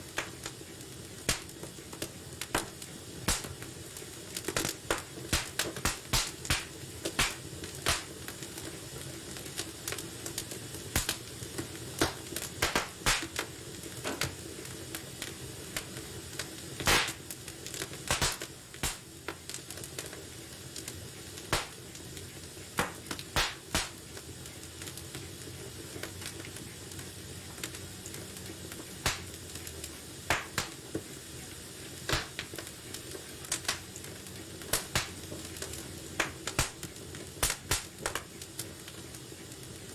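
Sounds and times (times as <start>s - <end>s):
fire crackling and popping: 0.0s - 39.9s
fire hissing: 0.0s - 39.9s.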